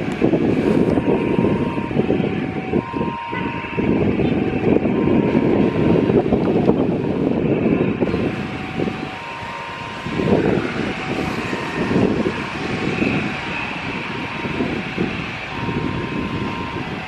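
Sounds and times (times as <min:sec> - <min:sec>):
distant jet engines whining: 0:00.0 - 0:17.0
wind buffeting microphone: 0:00.0 - 0:17.0.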